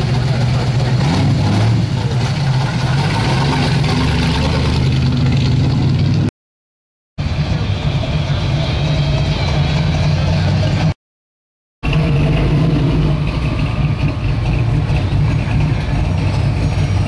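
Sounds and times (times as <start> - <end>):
car engine running: 1.9 - 6.3, 11.8 - 17.0.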